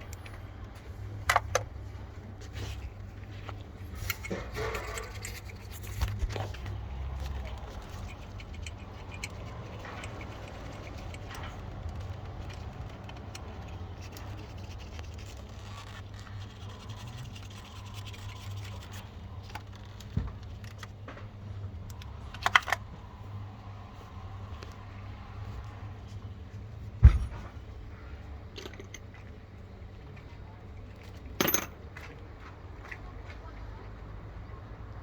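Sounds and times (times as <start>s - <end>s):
dull thud: 27.0s - 27.6s.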